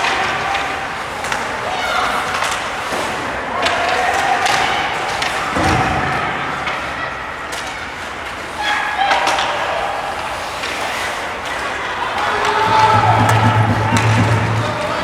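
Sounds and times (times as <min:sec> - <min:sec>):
crowd din: 0:12.3 - 0:15.0
hockey sticks and puck clacking: 0:12.3 - 0:15.0
spectators calling out: 0:12.4 - 0:15.0
heavy thud on boards: 0:12.6 - 0:15.0.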